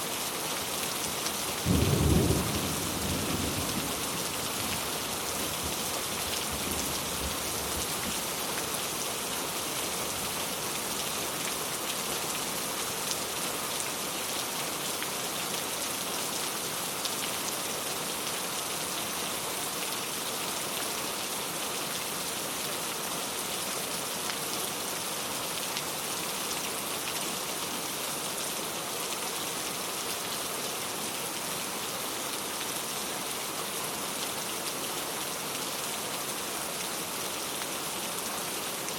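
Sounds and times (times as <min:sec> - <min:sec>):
steady rain falling: 0:00.0 - 0:38.9
low rumble of thunder: 0:01.7 - 0:04.3.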